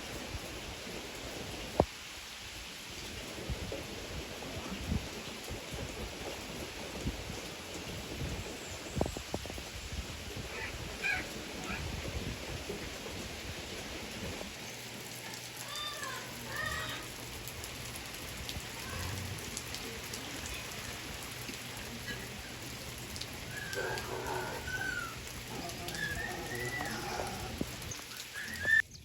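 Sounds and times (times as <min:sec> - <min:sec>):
steady rain: 0:00.0 - 0:29.0
animal calls: 0:10.5 - 0:11.9, 0:23.4 - 0:28.8.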